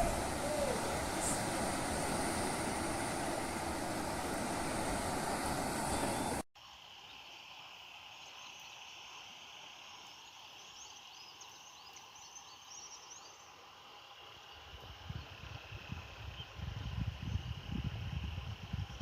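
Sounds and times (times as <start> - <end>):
loud rushing noise: 0.0 - 6.4
insect drone: 0.0 - 19.0.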